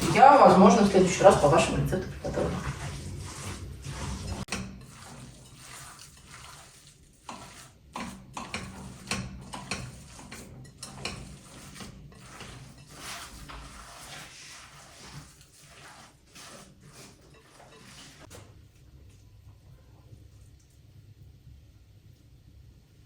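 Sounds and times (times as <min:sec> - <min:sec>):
utensils and dishes clinking: 0:03.8 - 0:13.9, 0:17.0 - 0:18.4.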